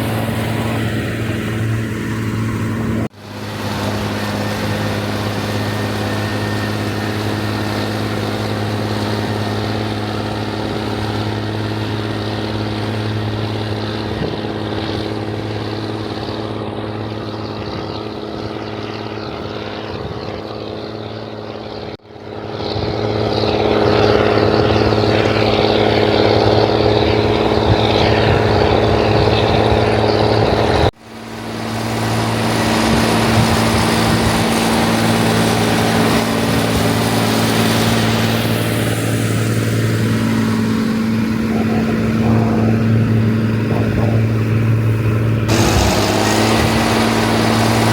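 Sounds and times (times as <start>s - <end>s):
tractor diesel engine droning: 0.0s - 47.9s.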